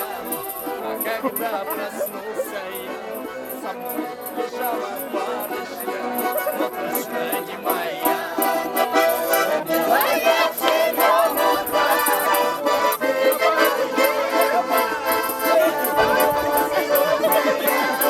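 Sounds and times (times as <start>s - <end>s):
button accordion folk tune: 0.0s - 18.0s
rattle keeping a beat: 0.0s - 18.0s.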